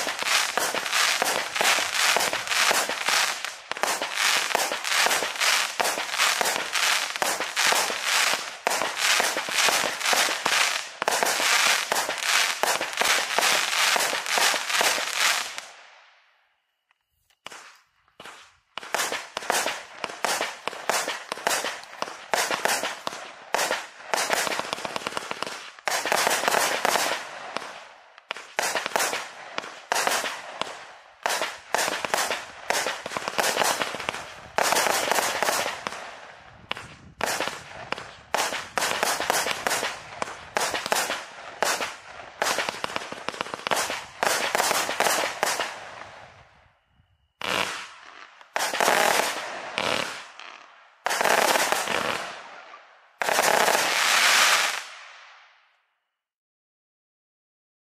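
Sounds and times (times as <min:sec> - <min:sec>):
fireworks firing rapid shots: 0:00.0 - 0:15.8, 0:17.4 - 0:46.4, 0:47.4 - 0:55.5
fireworks shells bursting: 0:00.0 - 0:15.8, 0:16.9 - 0:36.0, 0:36.7 - 0:46.0.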